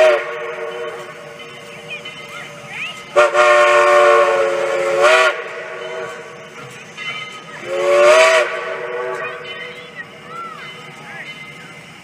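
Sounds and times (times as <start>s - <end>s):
steam locomotive whistle: 0.0s - 1.4s, 3.1s - 10.0s
steam hissing: 0.0s - 12.0s.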